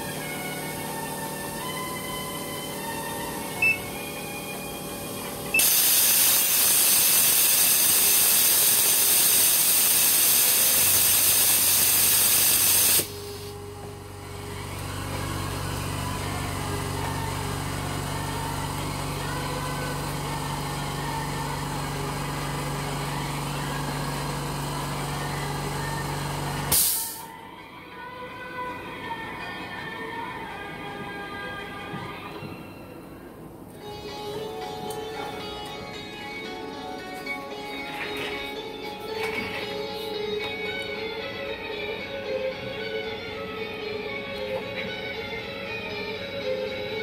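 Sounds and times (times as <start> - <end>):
faint music: 0.0 - 6.6, 13.0 - 47.0
low machine hum: 0.0 - 9.1, 13.0 - 26.7
loud hiss of blowing air: 5.6 - 13.5, 26.7 - 27.3.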